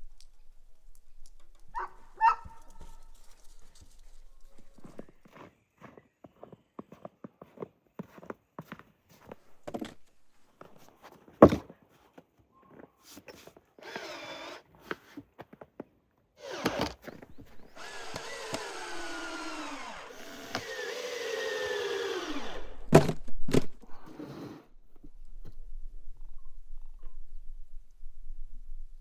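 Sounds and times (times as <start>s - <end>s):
small electric motor running: 13.8s - 14.6s, 16.4s - 22.9s.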